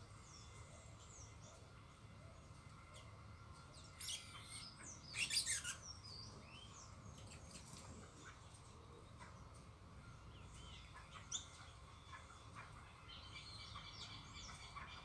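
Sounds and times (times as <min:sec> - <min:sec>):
songbirds chirping: 0:00.0 - 0:15.0
rapid harsh bird calls: 0:03.9 - 0:08.6.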